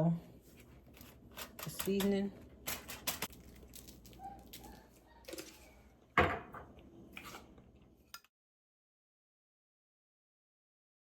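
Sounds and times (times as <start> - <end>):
dish set down hard: 6.2 - 6.7.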